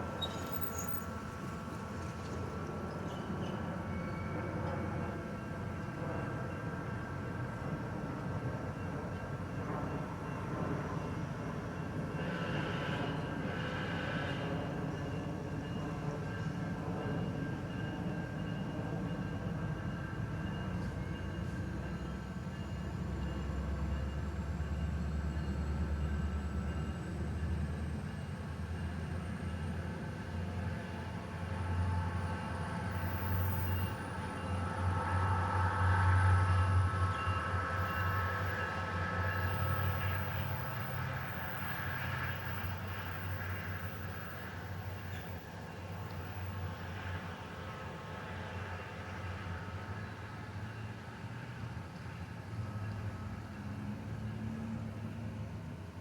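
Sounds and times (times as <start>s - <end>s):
commuter train drone: 0.0s - 56.0s
diesel locomotive rumbling: 12.4s - 56.0s.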